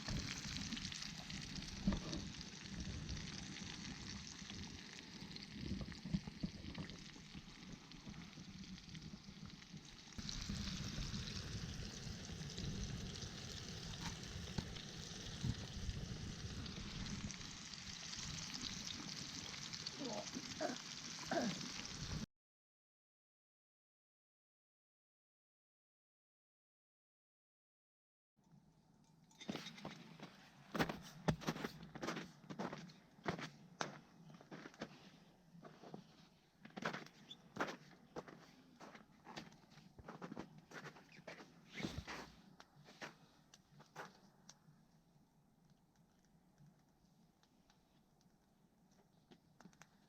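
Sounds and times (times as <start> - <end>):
oil popping: 0.0 - 21.6
chicken deep-frying in oil: 0.0 - 22.3, 28.5 - 35.0, 36.6 - 42.6.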